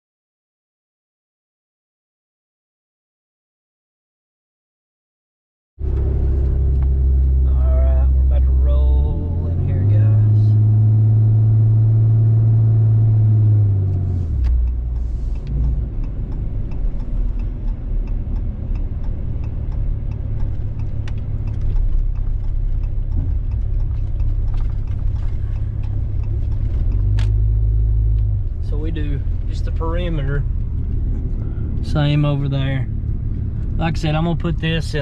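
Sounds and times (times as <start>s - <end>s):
light ticks and clatter: 14.4s - 27.4s.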